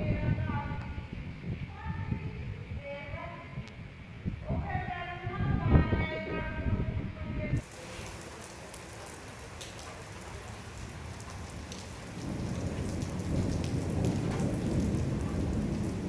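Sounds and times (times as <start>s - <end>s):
low thunder rumble: 0.0s - 16.0s
rain falling: 7.6s - 16.0s
raindrops ticking close by: 7.6s - 16.0s.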